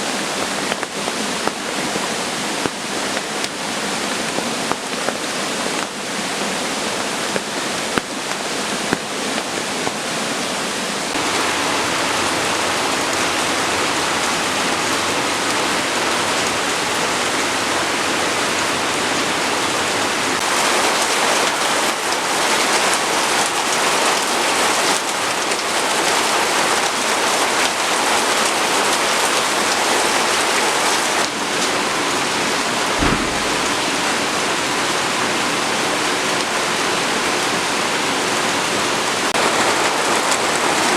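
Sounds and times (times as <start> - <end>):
steady rainfall: 0.0 - 40.9
low thud: 33.0 - 34.2.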